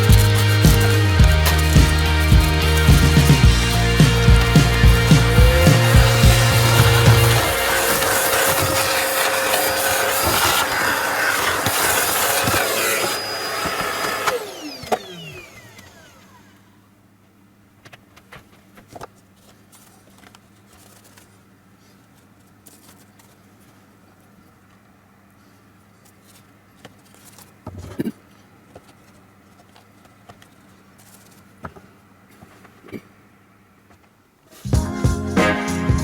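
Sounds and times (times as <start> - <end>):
electric motor spinning down: 0.0 - 16.6.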